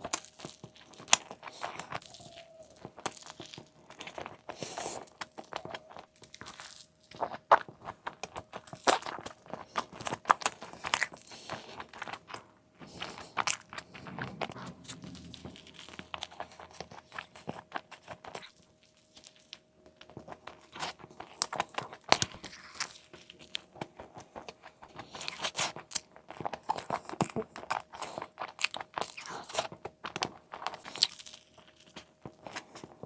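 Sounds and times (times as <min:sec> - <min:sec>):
crunching bites and chewing: 0:00.0 - 0:33.0.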